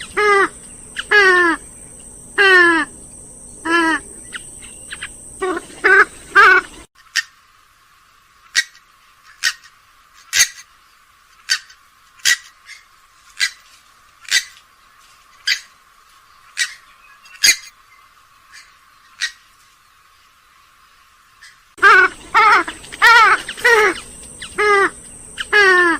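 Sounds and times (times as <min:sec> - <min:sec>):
swamphen short sharp calls: 0:00.0 - 0:03.0, 0:03.6 - 0:07.4, 0:21.4 - 0:25.9.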